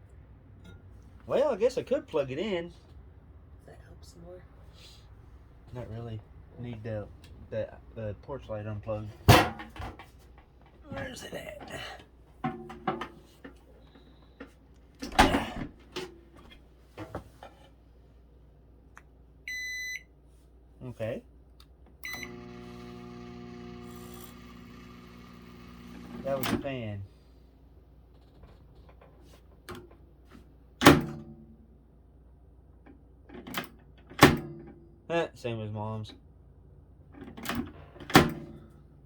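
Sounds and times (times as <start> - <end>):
objects knocking and clattering: 12.4 - 13.6.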